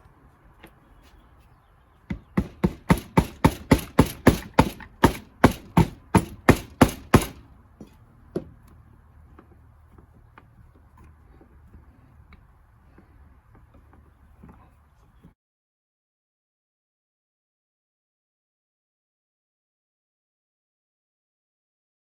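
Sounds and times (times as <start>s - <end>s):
hammer tapping on metal: 2.1s - 8.5s.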